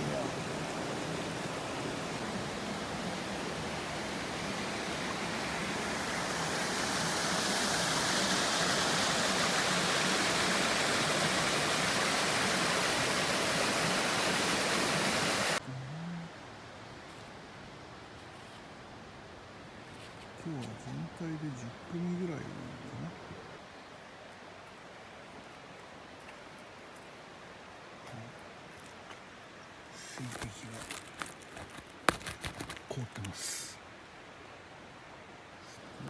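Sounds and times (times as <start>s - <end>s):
river water rushing: 0.0s - 15.6s.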